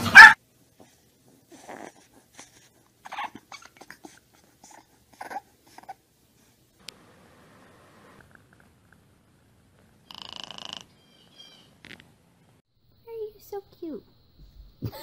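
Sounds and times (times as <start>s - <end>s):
dog barking: 0.0s - 0.4s
puppy squeaky noises: 3.0s - 4.1s.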